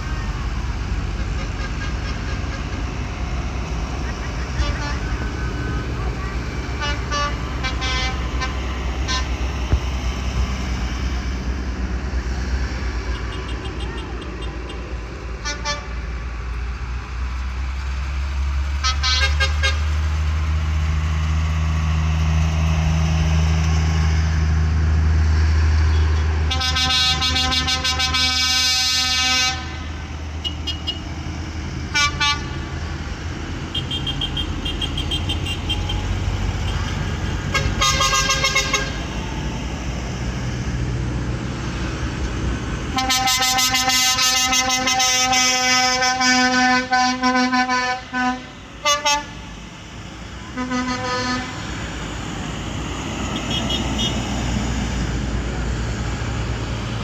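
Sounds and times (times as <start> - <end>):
tractor engines droning: 0.0 - 57.0
long horn blast: 1.0 - 3.3, 4.3 - 9.6, 15.4 - 16.2, 18.8 - 20.0, 25.8 - 31.1, 31.9 - 33.0, 33.7 - 39.4, 42.9 - 49.6, 50.4 - 52.0, 53.3 - 54.5
horn toots: 1.1 - 3.0, 4.3 - 5.4, 6.8 - 9.4, 25.9 - 31.1, 31.9 - 32.7, 33.7 - 39.2, 42.9 - 49.5, 50.5 - 51.8, 53.4 - 54.4.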